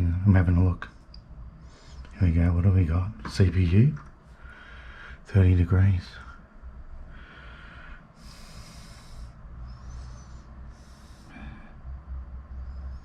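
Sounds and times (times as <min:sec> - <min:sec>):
low steady hum: 0:00.0 - 0:13.0
person breathing close: 0:04.3 - 0:05.3, 0:06.4 - 0:13.0.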